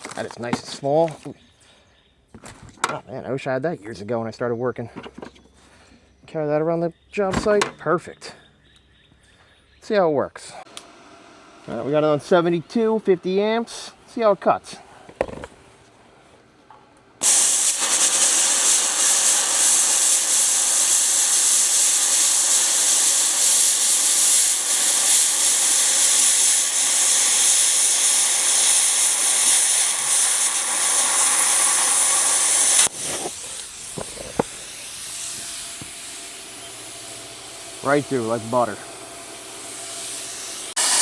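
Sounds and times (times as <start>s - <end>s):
plasma cutter hissing: 17.2s - 41.0s.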